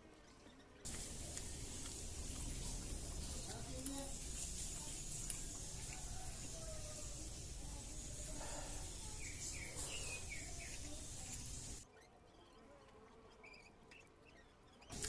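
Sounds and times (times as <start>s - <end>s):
background hiss: 0.8s - 11.8s.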